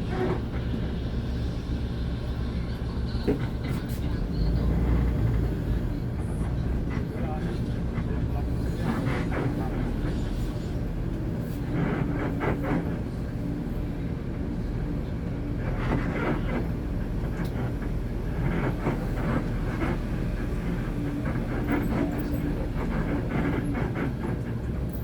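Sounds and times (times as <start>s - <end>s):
bus engine rumbling: 0.0s - 25.0s.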